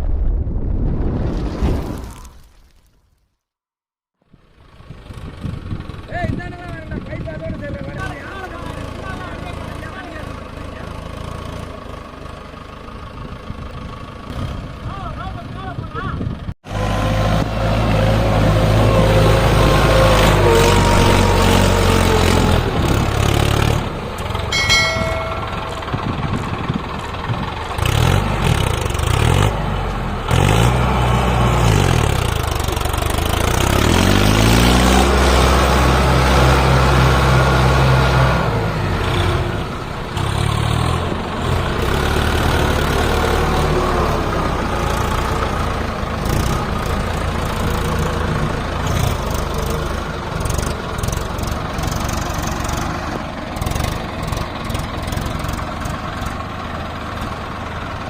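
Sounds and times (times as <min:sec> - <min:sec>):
tractor diesel engine revving: 0:04.7 - 0:15.4, 0:16.6 - 0:58.0
short high-pitched tone: 0:24.5 - 0:26.2.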